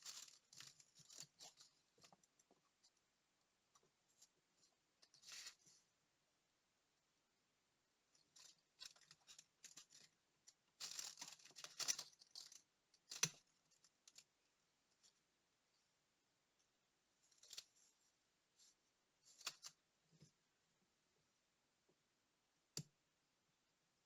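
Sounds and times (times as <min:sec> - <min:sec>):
small scrapes and clicks: 0:00.0 - 0:03.0, 0:03.8 - 0:05.8, 0:08.2 - 0:14.3, 0:17.3 - 0:17.9, 0:18.6 - 0:20.3.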